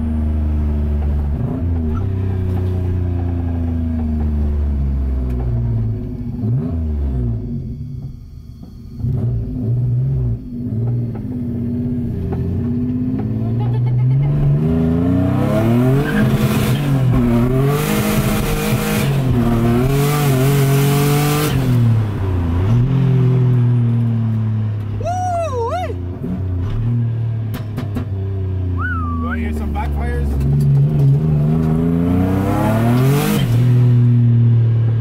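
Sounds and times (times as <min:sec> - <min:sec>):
car engine revving: 0:00.0 - 0:25.1, 0:25.9 - 0:35.0
turbo boost and exhaust rush: 0:28.7 - 0:35.0.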